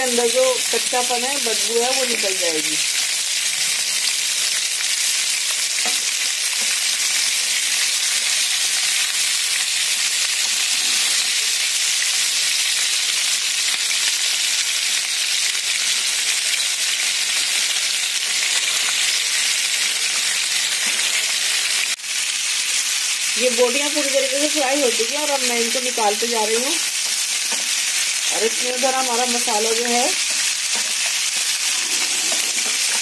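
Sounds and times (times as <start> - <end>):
chicken sizzling in hot oil: 0.0 - 33.0
wooden spoon turning food: 24.8 - 33.0.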